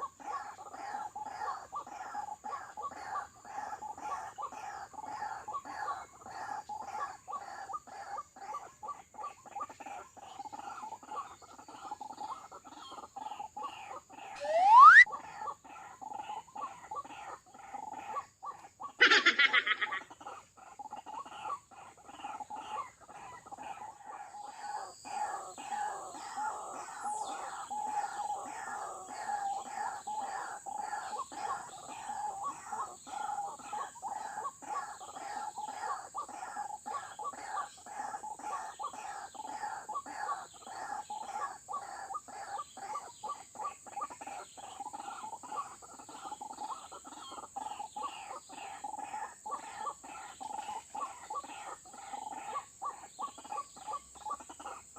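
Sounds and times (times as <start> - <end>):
waterhen calling: 14.2 - 15.3, 18.8 - 20.1
steady high-pitched tone: 14.4 - 15.1.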